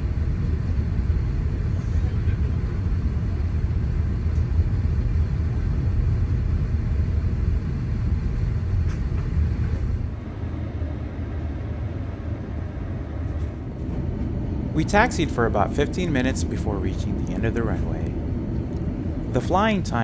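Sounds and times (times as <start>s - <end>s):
aircraft cabin rumble: 0.0s - 20.0s.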